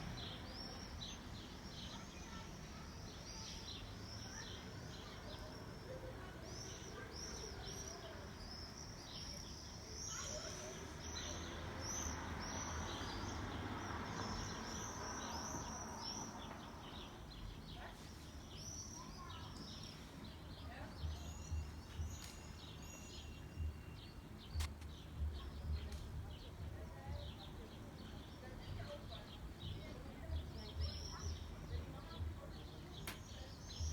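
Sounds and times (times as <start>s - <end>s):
songbirds chirping: 0.0s - 33.9s
outdoor noise with low rumble: 18.6s - 33.9s.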